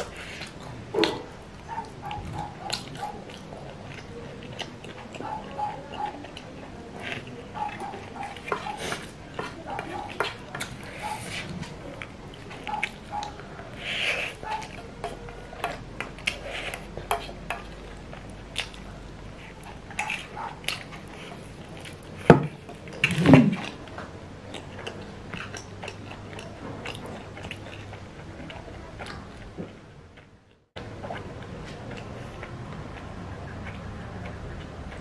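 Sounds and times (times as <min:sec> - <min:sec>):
person chewing noodles: 0:00.0 - 0:30.4, 0:31.0 - 0:35.0.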